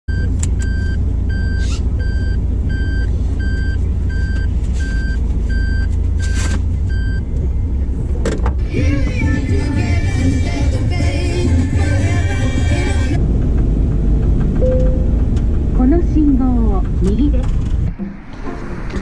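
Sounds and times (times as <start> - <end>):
reversing warning beeps: 0.1 - 7.3
low engine rumble: 0.1 - 19.0.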